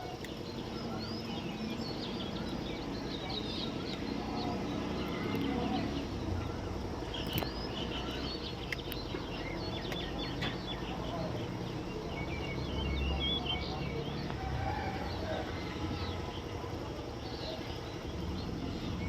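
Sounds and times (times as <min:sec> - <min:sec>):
many birds chirping: 0:00.0 - 0:19.0.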